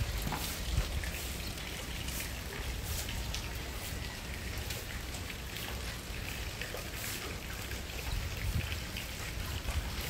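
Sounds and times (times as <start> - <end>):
hand broom sweeping floor: 0.0 - 3.2, 3.8 - 4.0, 6.8 - 7.4
steady rain falling: 0.0 - 10.0.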